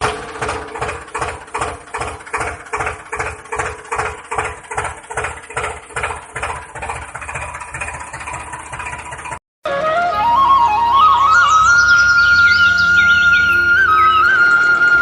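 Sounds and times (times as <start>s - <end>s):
motor chugging: 0.0s - 9.4s.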